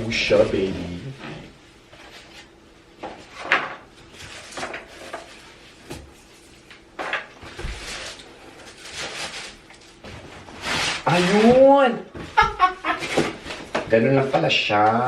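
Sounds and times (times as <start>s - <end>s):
packing scraping and rustling: 7.6s - 11.8s.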